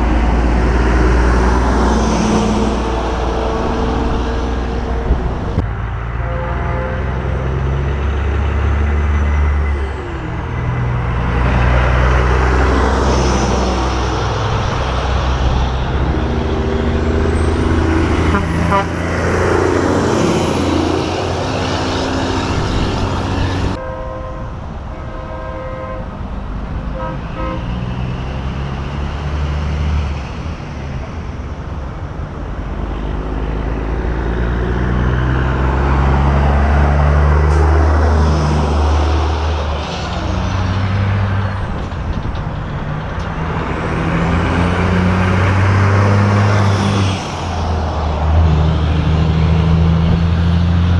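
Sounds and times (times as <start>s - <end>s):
trucks driving past: 0.0s - 50.9s
truck air horn blasts: 6.1s - 7.7s, 18.2s - 19.3s, 23.8s - 26.1s, 26.8s - 27.9s.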